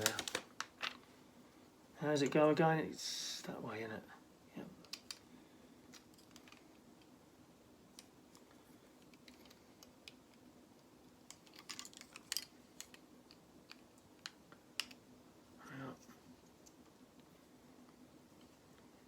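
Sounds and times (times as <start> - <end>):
plastic pieces clicking together: 0.0 - 1.0, 5.9 - 6.7, 11.3 - 15.0.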